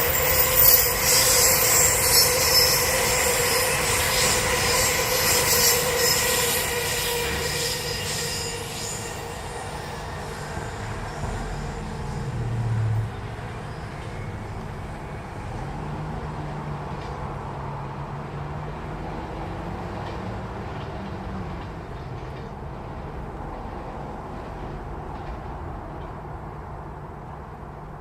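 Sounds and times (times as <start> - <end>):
train rumbling on tracks: 0.0 - 28.0.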